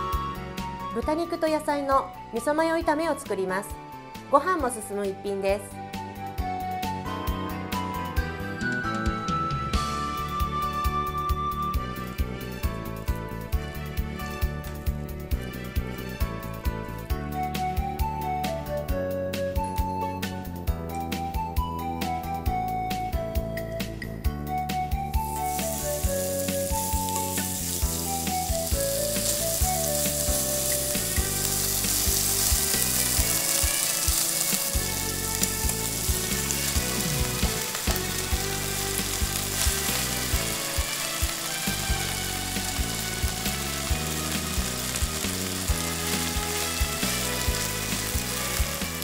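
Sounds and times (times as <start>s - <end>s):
background music: 0.0s - 49.0s
pork sizzling in frying pan: 25.1s - 49.0s.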